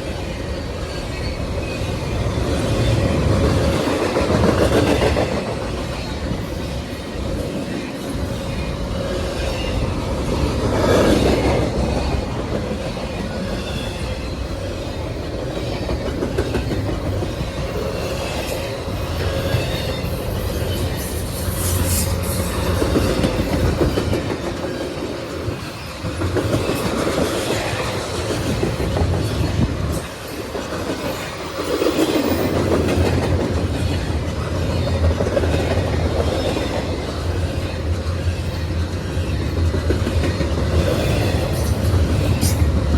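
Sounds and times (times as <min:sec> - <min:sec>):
train wheels clacking over rail joints: 0:14.9 - 0:42.9.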